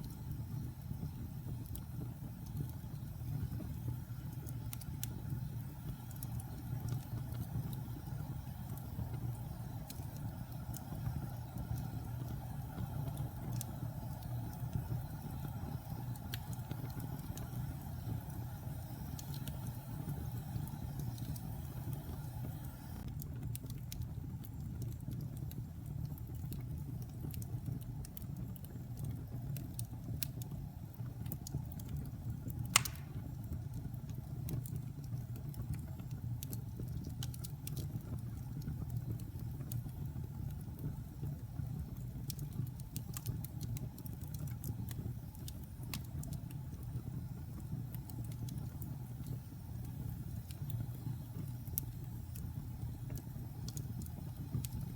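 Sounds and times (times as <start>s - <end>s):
fire crackles: 0.0s - 54.9s
fireplace fire rumble: 0.0s - 54.9s
fire sharp pop: 32.7s - 33.4s.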